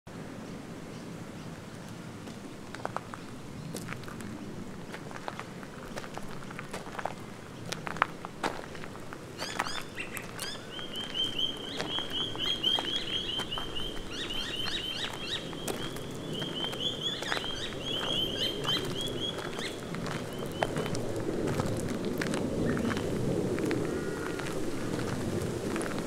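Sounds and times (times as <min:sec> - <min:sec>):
footsteps on bush track: 0:01.8 - 0:26.0
bird chirping rapidly: 0:09.4 - 0:20.8.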